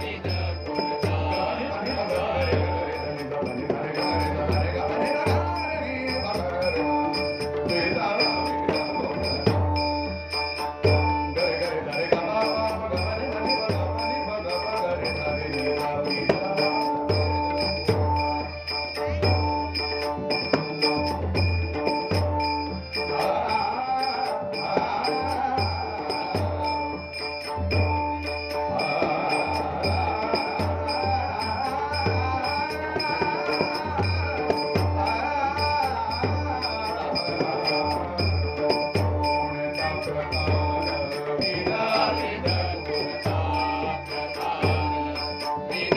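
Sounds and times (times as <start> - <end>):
drum beat: 0.0 - 45.9
small metallic percussion: 0.0 - 45.9
person singing: 28.6 - 45.9.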